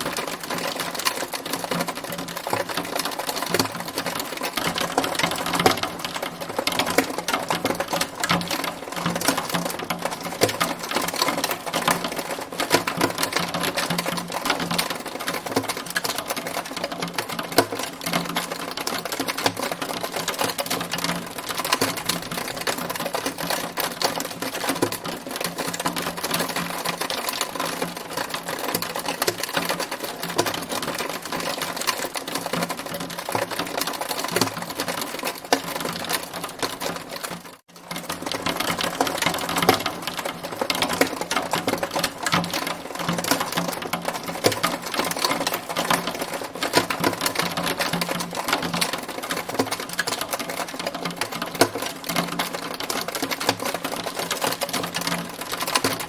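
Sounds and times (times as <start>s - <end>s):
hail clattering: 0.0s - 56.0s.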